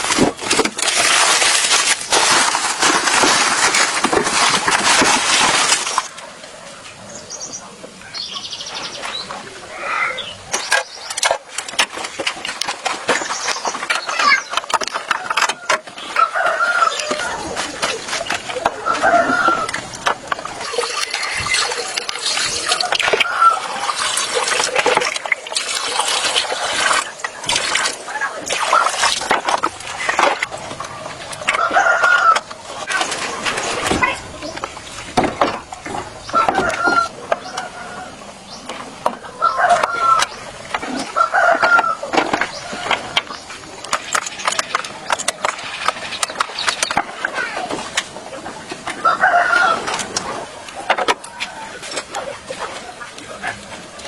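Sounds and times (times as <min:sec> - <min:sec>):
water splashing and trickling: 0:00.0 - 0:54.0
rooster crowing: 0:15.4 - 0:17.5, 0:18.7 - 0:19.8, 0:31.5 - 0:32.5, 0:39.3 - 0:40.3, 0:41.1 - 0:42.1, 0:49.0 - 0:50.0.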